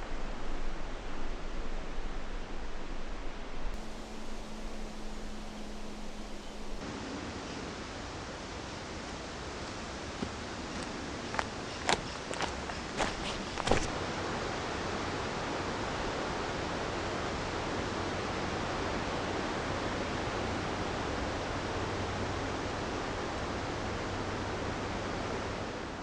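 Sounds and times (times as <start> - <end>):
flowing water rushing: 3.8 - 6.8.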